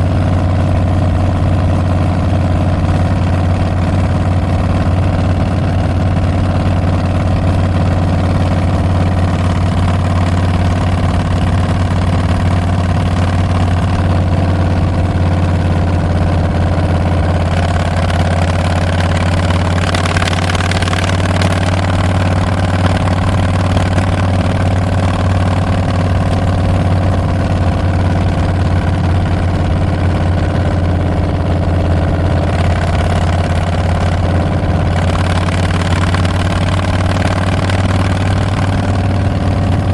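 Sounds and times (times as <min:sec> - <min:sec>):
motorcycle exhaust rumbling: 0:00.0 - 0:39.9
rush of noise: 0:08.4 - 0:39.9.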